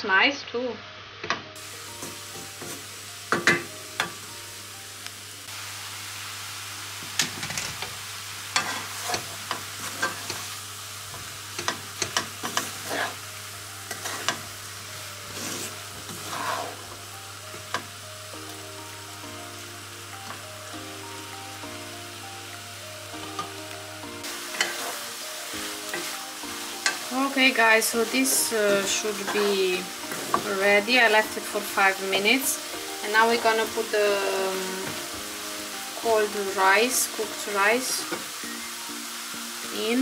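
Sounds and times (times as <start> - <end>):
food sizzling in frying pan: 1.0 - 40.0
spatula scraping and knocking pan: 11.6 - 13.2, 13.9 - 14.4, 15.3 - 16.9, 24.5 - 25.0, 28.2 - 30.6.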